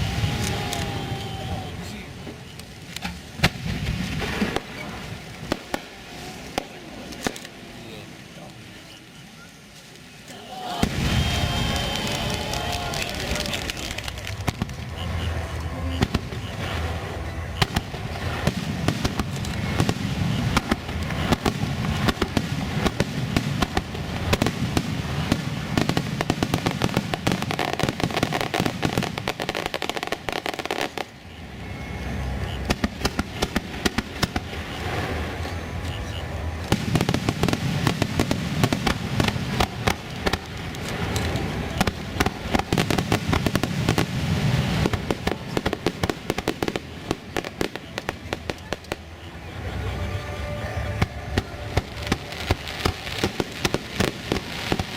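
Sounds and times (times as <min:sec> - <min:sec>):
deep fireworks booms: 0:00.0 - 0:07.8, 0:10.3 - 0:54.9
fireworks bursts and crackling: 0:00.0 - 0:54.9.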